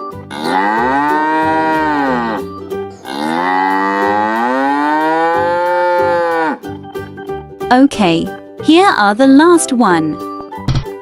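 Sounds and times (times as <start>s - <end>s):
cow mooing: 0.3s - 6.6s.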